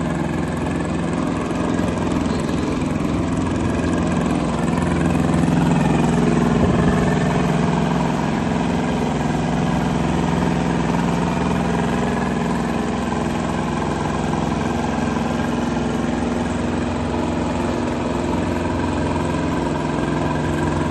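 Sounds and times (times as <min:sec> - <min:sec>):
wood chipper diesel engine running: 0:00.0 - 0:20.9.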